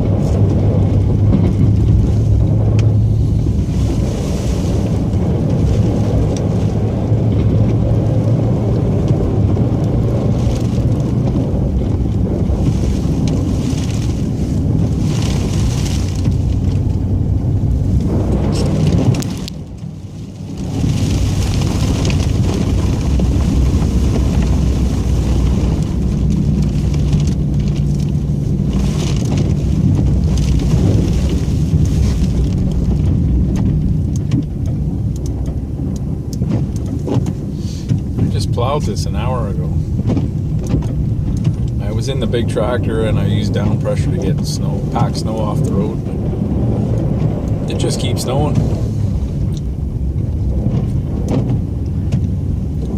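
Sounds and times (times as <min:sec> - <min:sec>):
rushing scraping noise: 0:10.2 - 0:16.9.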